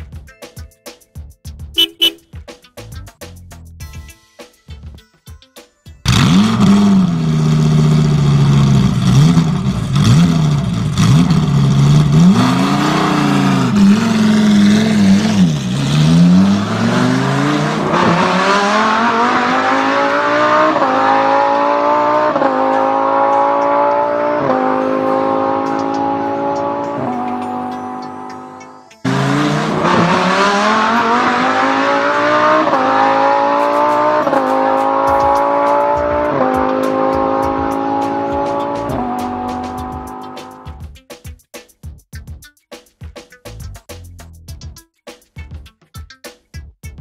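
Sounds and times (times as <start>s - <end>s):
engine accelerating through gears: 6.1s - 40.8s
vehicle engine starting and revving: 6.1s - 40.8s.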